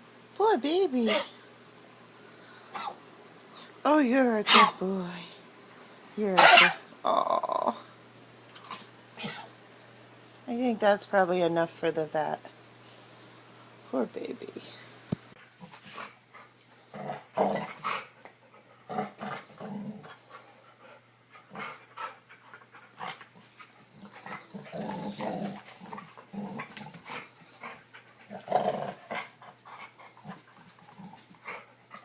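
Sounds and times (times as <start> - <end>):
dog growling: 16.8 - 18.1, 18.9 - 20.3, 23.0 - 32.0.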